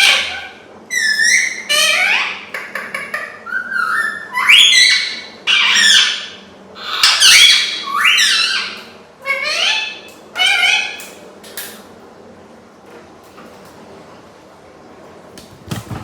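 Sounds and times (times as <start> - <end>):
parrot squawking: 0.0 - 11.2.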